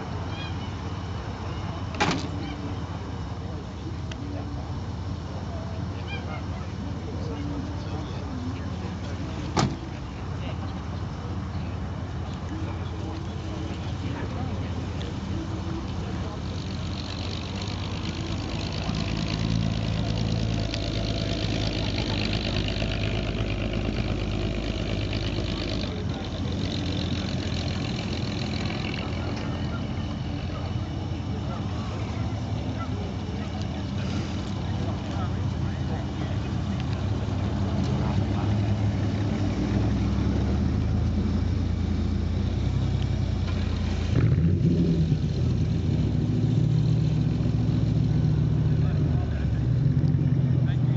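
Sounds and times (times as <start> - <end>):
pickup truck engine running: 0.0 - 50.9.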